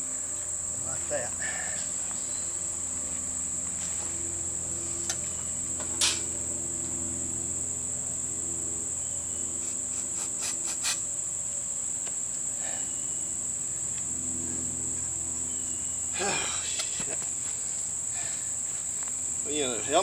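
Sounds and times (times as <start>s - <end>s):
high-pitched insect chirring: 8.8s - 12.0s.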